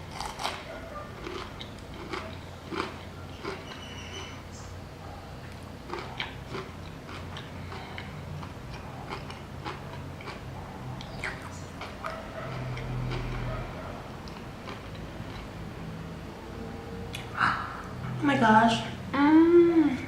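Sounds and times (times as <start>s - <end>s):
low steady hum: 0.0s - 20.0s
chewing with wet mouth clicks: 1.2s - 4.4s, 5.4s - 13.5s, 14.2s - 15.5s.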